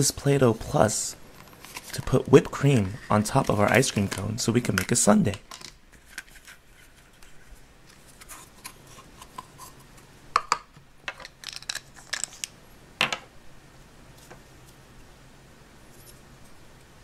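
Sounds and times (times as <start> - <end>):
plastic toys clicking and tapping: 3.4 - 5.8.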